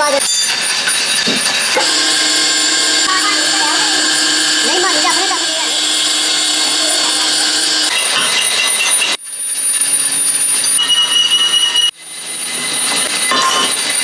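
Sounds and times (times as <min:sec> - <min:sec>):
power tool screeching on metal: 0:01.8 - 0:09.2.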